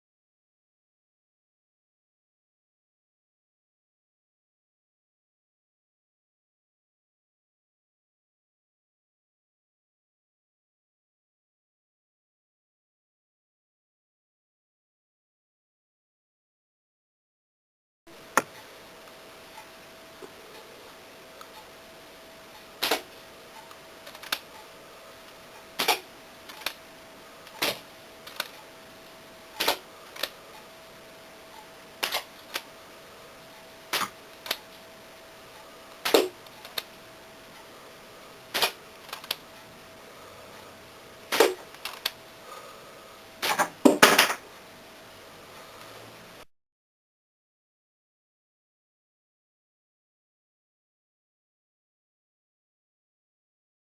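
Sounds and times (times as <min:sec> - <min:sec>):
faint steady hum: 0:18.1 - 0:46.5.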